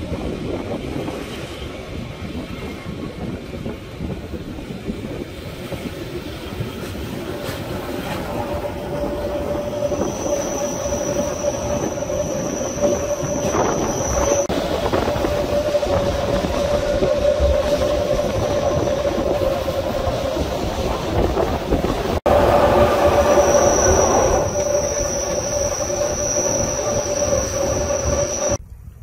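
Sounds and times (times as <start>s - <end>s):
train wheels rumbling on track: 0.0s - 28.7s
train wheel squeal: 6.6s - 28.6s
higher squeal tone: 7.6s - 28.6s.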